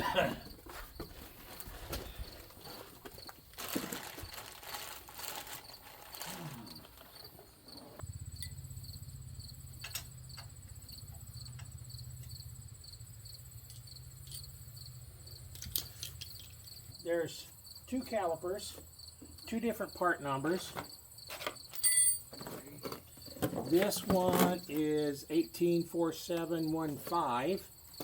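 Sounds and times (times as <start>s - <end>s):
cricket chirping: 0.0s - 28.0s
rustling and clatter of handling: 0.4s - 8.0s, 20.6s - 24.9s
steady low hum: 8.0s - 15.7s.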